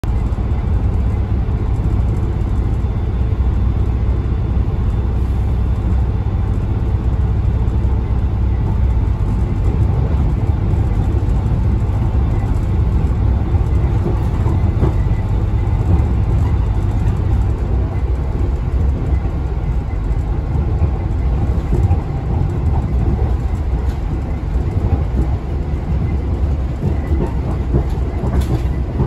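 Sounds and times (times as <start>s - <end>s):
diesel engine: 0.0s - 29.0s
wheels rumbling on rails: 0.0s - 29.0s.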